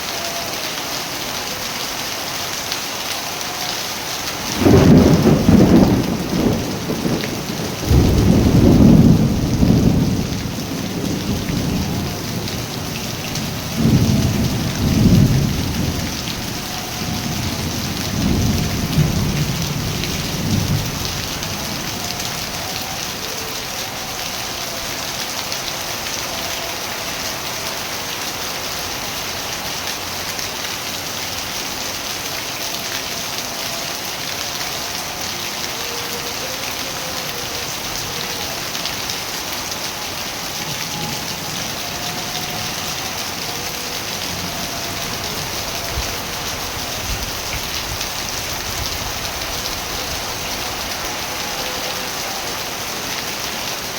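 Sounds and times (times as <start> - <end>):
steady rain: 0.0 - 53.9
rolling thunder: 4.4 - 22.6.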